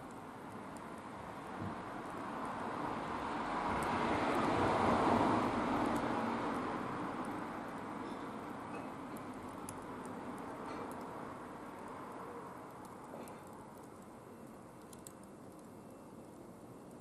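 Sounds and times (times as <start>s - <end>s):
vehicle passing by: 2.6s - 7.2s.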